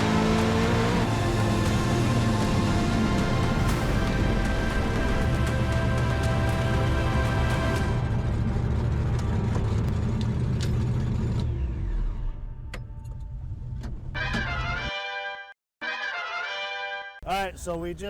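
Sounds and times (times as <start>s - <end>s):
truck engine at full throttle: 0.0s - 13.8s.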